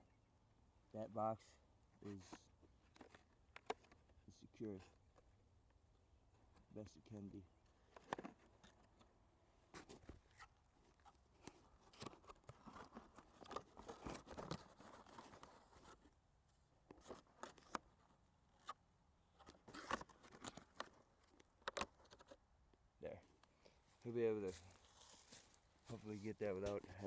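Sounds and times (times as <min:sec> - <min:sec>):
food box and wrapping crinkling: 0:09.8 - 0:16.1.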